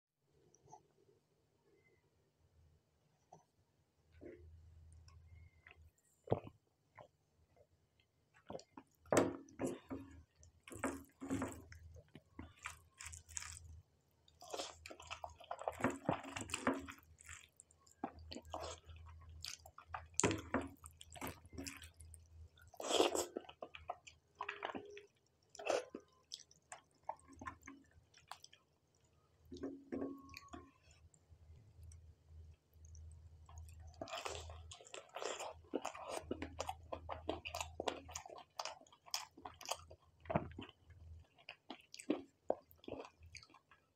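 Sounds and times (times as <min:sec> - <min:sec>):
close-miked chewing: 0:09.7 - 0:29.6, 0:31.8 - 0:43.9.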